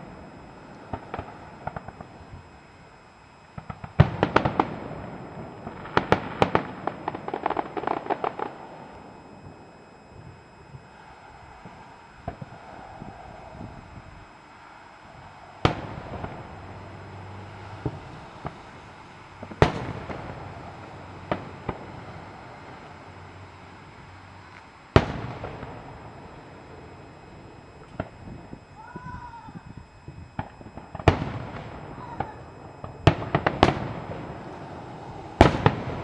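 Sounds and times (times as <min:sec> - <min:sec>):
fireworks shells bursting: 0:00.0 - 0:14.1
smaller firework cracks: 0:00.1 - 0:36.0.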